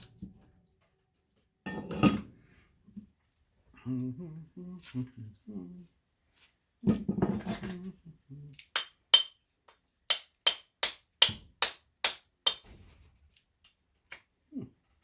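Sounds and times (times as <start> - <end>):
hammer striking metal: 8.8 - 12.6.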